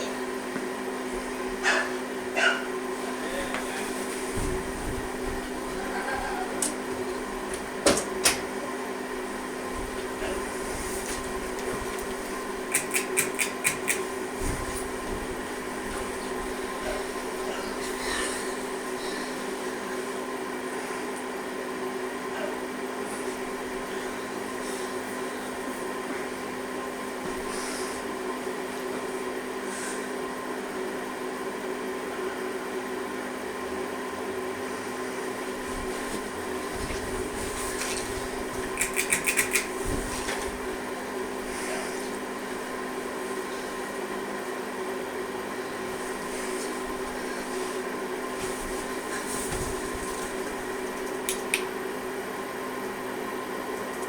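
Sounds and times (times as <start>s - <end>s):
ceiling fan motor humming: 0.0s - 54.0s
quick sharp clicks: 12.7s - 14.1s, 38.8s - 39.8s.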